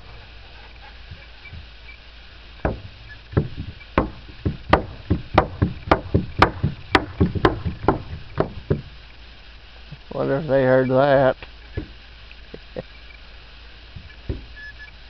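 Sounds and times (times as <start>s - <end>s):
fireworks banging: 2.6s - 9.1s, 13.9s - 14.6s.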